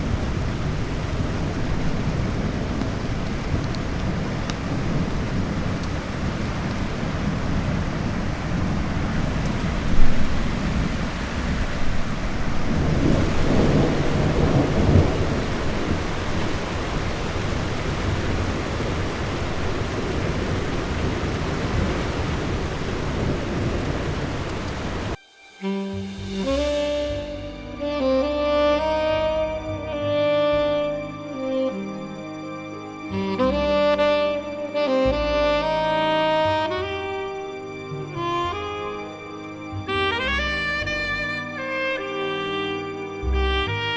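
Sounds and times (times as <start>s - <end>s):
thunder rumbling: 0.0s - 25.2s
steady rain: 0.0s - 43.9s.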